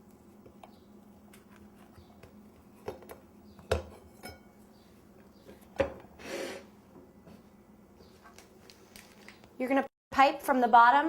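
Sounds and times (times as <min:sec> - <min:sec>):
dishes and utensils clinking: 0:03.8 - 0:04.6.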